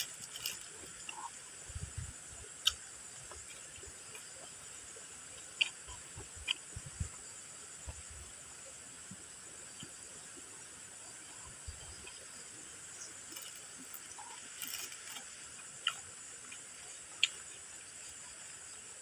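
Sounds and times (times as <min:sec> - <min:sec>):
crunchy snack being chewed: 0:00.0 - 0:01.4, 0:05.4 - 0:06.7, 0:13.2 - 0:16.6, 0:17.2 - 0:17.6
background hiss: 0:00.0 - 0:19.0.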